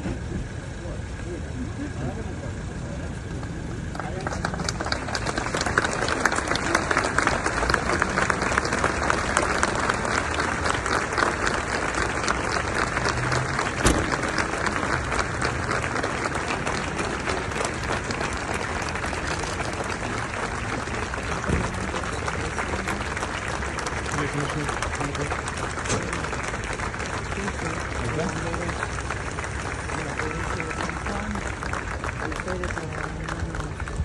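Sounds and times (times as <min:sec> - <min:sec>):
crowd applauding: 0:03.2 - 0:34.0
sharp knock: 0:13.8 - 0:14.1.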